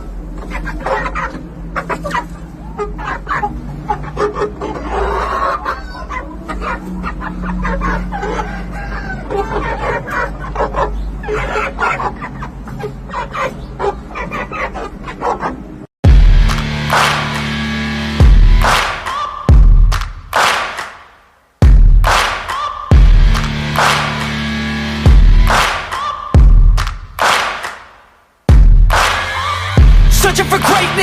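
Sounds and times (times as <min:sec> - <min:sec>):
chickens clucking and calling: 0:00.0 - 0:15.9, 0:19.0 - 0:19.5
rooster crowing: 0:08.0 - 0:09.7.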